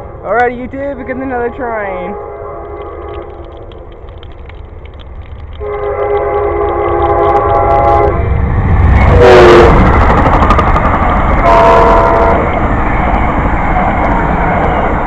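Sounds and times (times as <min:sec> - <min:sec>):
train rumbling: 0:00.0 - 0:15.0
train horn blasts: 0:02.0 - 0:03.2, 0:05.6 - 0:08.3, 0:09.0 - 0:09.9, 0:11.4 - 0:12.6.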